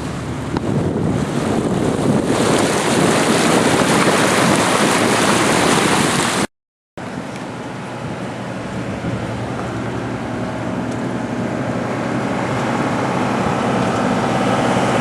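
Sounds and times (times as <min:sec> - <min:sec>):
diesel boat engine droning: 0:00.0 - 0:06.2, 0:07.0 - 0:15.0.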